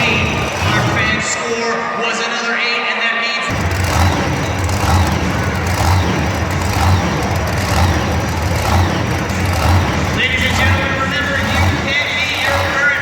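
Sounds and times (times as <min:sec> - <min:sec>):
large engine revving: 0:00.0 - 0:01.4, 0:03.5 - 0:13.0.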